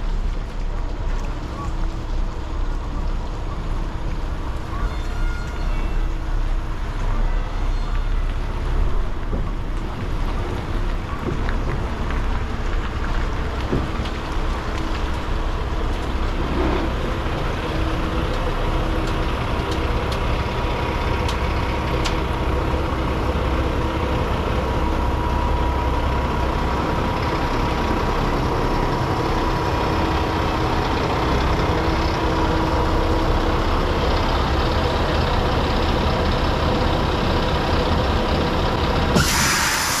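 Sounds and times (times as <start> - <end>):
road noise: 0.0 - 40.0
truck engine drone: 0.0 - 40.0.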